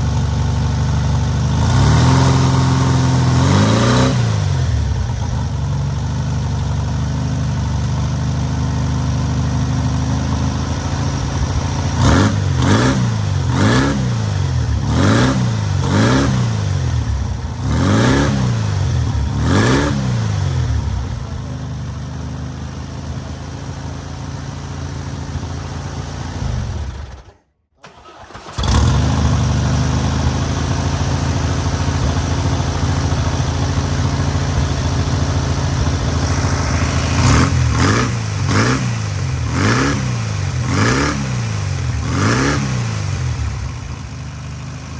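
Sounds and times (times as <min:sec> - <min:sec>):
air-cooled engine running and revving: 0:00.0 - 0:27.3, 0:27.9 - 0:44.9.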